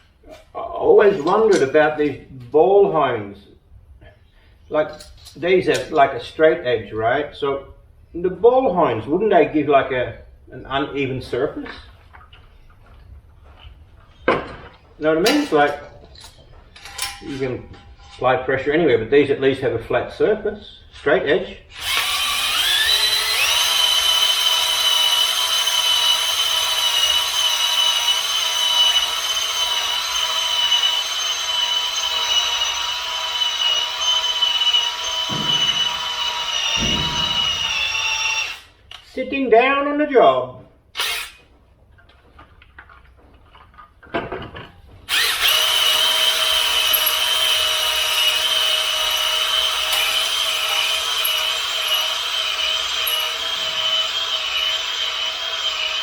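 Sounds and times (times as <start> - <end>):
electric drill whining: 21.8 - 38.8, 41.0 - 41.4, 45.1 - 56.0.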